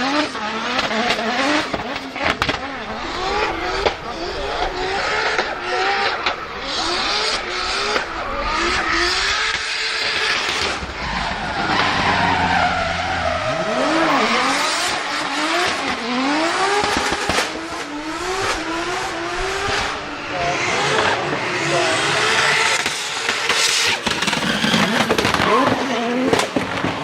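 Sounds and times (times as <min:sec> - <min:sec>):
car engine revving hard: 0:00.0 - 0:27.0
tyres squealing: 0:10.0 - 0:14.6.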